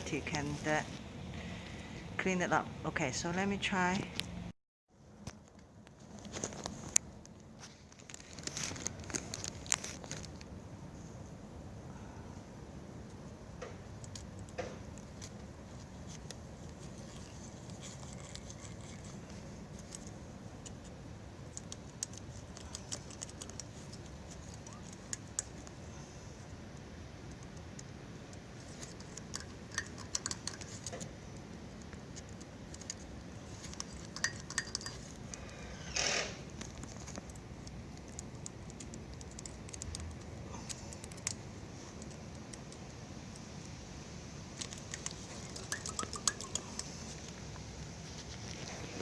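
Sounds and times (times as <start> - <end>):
small metallic clicks and taps: 27.3 - 31.2, 33.6 - 35.4, 44.6 - 47.4.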